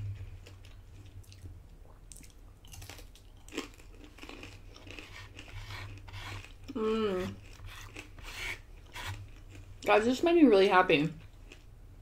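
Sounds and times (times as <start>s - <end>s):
chewing crispy bacon: 2.1s - 9.9s.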